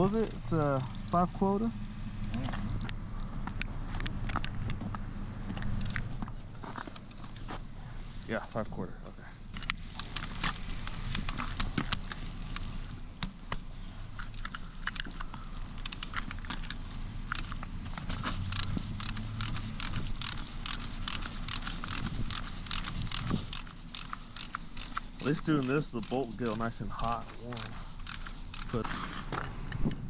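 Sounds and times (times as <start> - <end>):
ratchet wrench clicking: 9.5 - 10.3, 14.2 - 16.5, 17.3 - 30.0.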